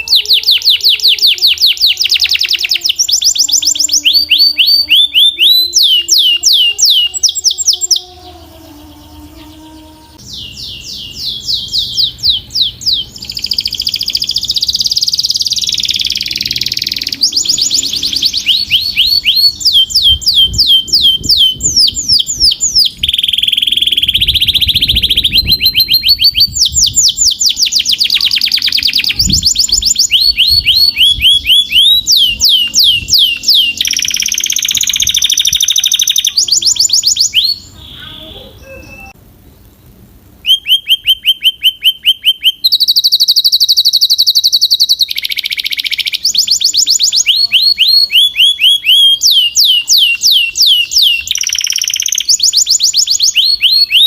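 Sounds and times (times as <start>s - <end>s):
canary singing trills: 0.0s - 39.7s, 40.4s - 54.0s.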